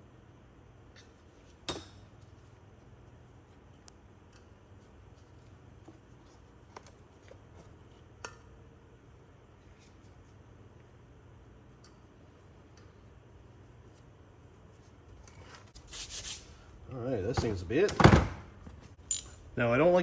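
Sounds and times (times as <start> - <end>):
small steel parts clinking: 19.0 - 19.4
sharp metal click with ring: 19.1 - 19.4.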